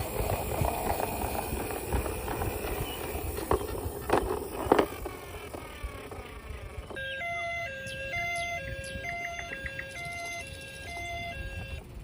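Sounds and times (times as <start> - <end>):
toys clicking and rustling: 0.0 - 7.4.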